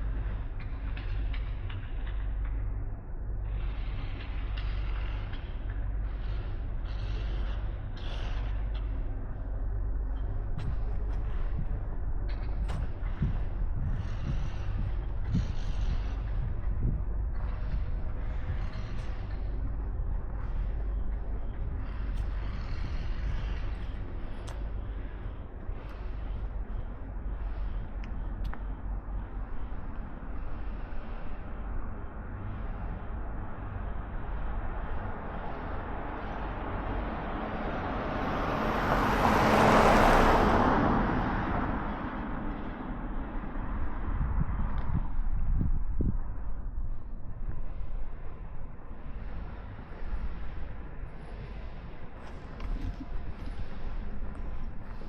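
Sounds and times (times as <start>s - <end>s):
background traffic hum: 0.0s - 55.0s
low rumble: 0.0s - 55.0s
traffic hissing past: 35.9s - 43.8s
vehicle passing close by: 36.3s - 43.4s.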